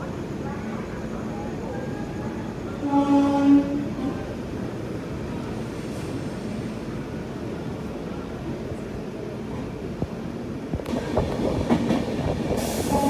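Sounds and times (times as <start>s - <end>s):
train rumbling on track: 0.0s - 13.0s
train horn: 2.8s - 4.1s.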